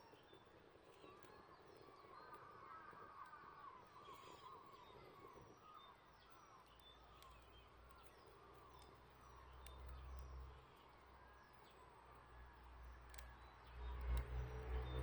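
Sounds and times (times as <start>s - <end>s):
wood fire crackling: 12.8s - 15.0s.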